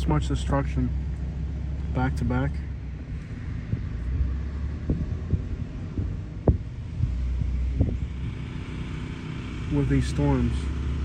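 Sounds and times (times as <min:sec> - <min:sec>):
generators humming: 0:00.0 - 0:11.0
short knocks: 0:03.2 - 0:08.2.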